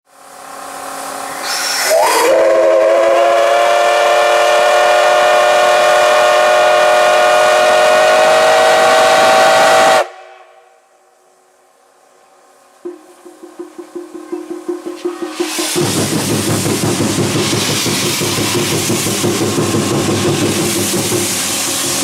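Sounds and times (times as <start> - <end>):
steam hissing: 0.1 - 10.6, 12.9 - 22.0
steam locomotive whistle: 1.2 - 10.7.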